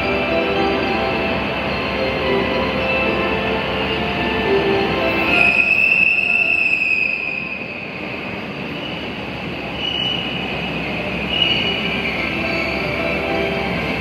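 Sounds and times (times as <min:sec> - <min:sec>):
train rumbling into station: 0:00.0 - 0:14.0
high brake squeal: 0:05.1 - 0:14.0.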